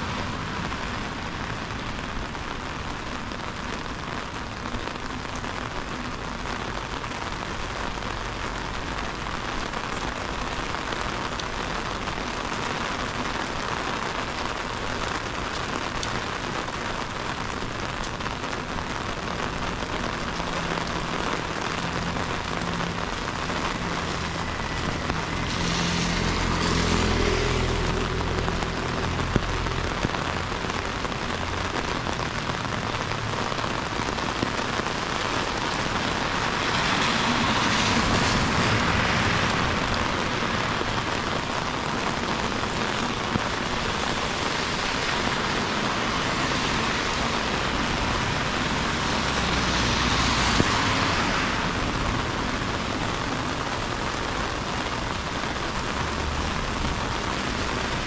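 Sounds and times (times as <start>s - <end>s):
heavy rain hissing: 0.0s - 58.0s
vehicle rumble passing: 17.5s - 58.0s.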